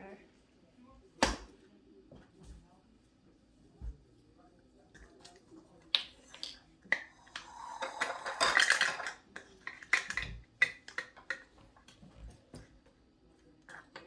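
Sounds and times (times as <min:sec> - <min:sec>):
dishes and utensils clinking: 0:06.3 - 0:12.0.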